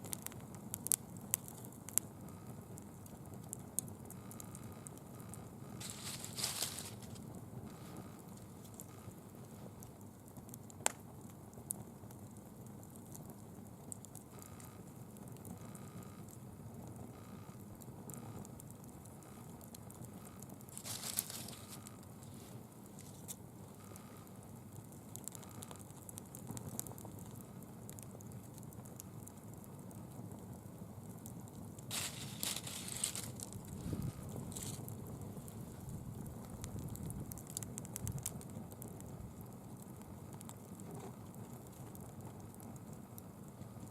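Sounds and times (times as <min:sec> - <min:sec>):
leaf fire crackling: 0:00.0 - 0:43.9
sharp fire pops: 0:10.5 - 0:11.1, 0:31.8 - 0:39.6.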